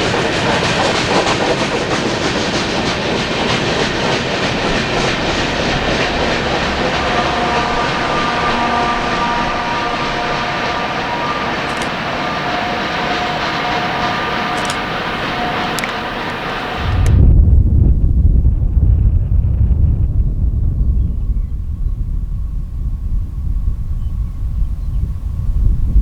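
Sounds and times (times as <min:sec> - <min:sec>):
train wheels rushing on rail: 0:00.0 - 0:26.0
faint wheel squeal: 0:05.2 - 0:17.0.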